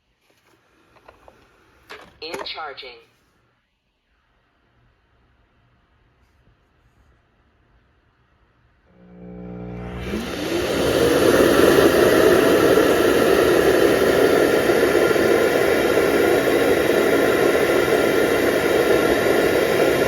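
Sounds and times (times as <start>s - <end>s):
suction motor rush of air: 8.9s - 20.0s.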